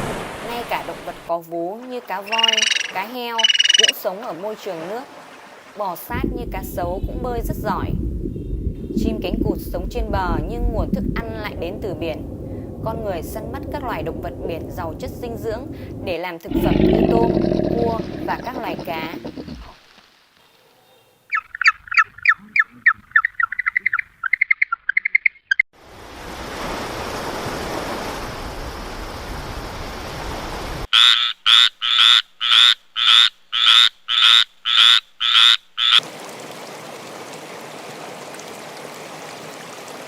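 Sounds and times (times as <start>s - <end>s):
animal calls: 16.5s - 19.8s.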